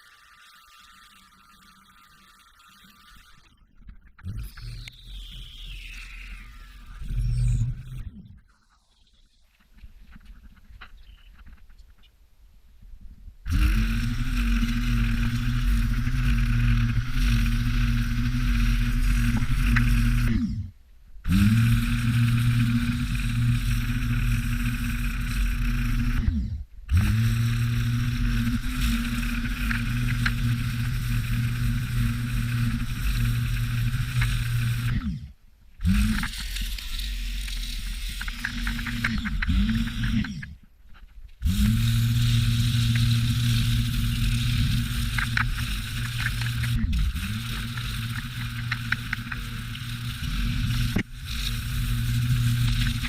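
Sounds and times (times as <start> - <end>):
engine running: 13.5 - 20.7, 21.3 - 35.2, 35.8 - 40.6, 41.4 - 53.0.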